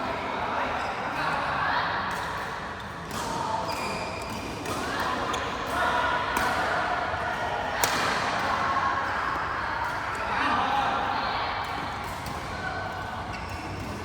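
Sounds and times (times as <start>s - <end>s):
rackets hitting shuttlecock: 2.1s - 6.9s.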